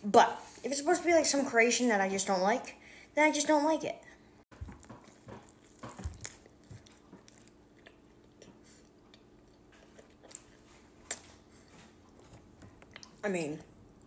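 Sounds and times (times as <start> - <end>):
wet chewing: 4.5 - 13.2
biting into sandwich: 4.6 - 11.4.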